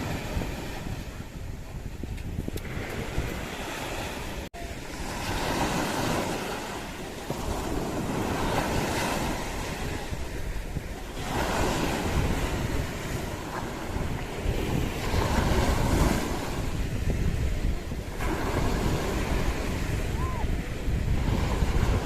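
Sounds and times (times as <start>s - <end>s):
sea waves washing ashore: 0.0s - 22.0s
wind buffeting microphone: 0.0s - 22.0s.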